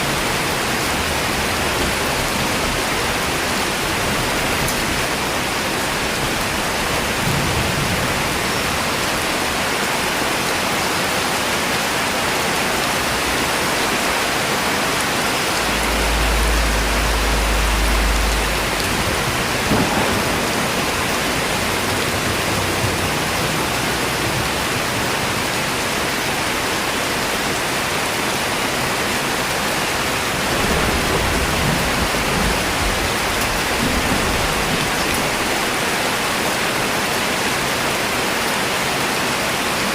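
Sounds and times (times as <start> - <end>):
steady rain falling: 0.0 - 39.9
low rumble: 14.7 - 24.5.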